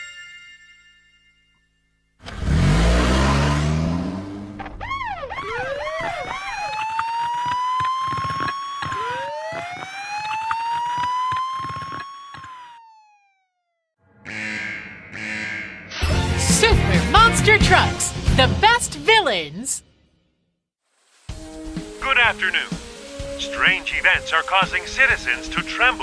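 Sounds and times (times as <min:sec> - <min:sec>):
rushing burst with engine rev: 0:02.2 - 0:05.4
police siren yelping and wailing: 0:04.5 - 0:13.5.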